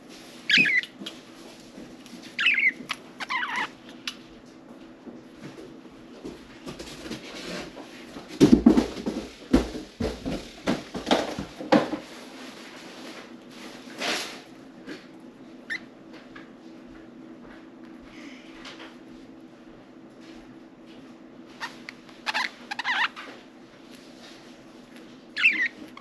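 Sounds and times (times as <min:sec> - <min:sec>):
bird chirp: 0:00.5 - 0:01.0, 0:02.4 - 0:04.2, 0:25.4 - 0:26.0.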